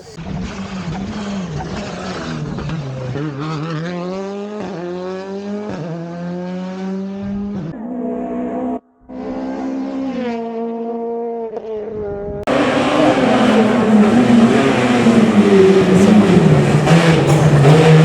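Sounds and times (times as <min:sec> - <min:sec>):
rally car engine at full throttle: 0:00.0 - 0:18.0
tyre and road noise: 0:11.5 - 0:18.0.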